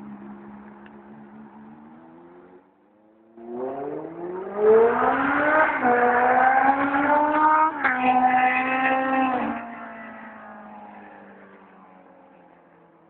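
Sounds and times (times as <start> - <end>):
motorcycle engine accelerating past: 3.4 - 11.1.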